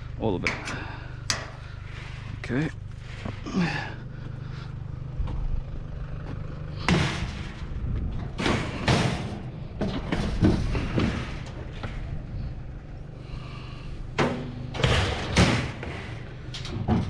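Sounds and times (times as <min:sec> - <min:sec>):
steady low hum: 0:00.0 - 0:17.0
heavy thuds of scrap steel: 0:06.8 - 0:12.1, 0:14.1 - 0:16.2.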